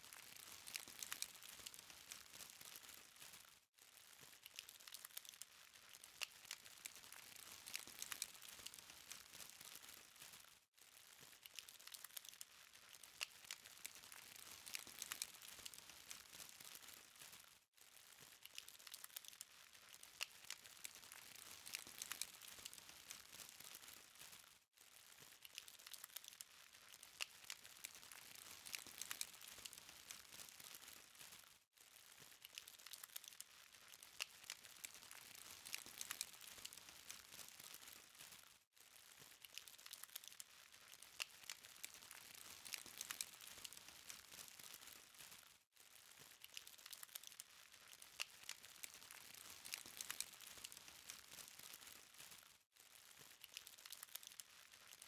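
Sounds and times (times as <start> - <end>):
charcoal fire crackling: 0.0 - 55.0.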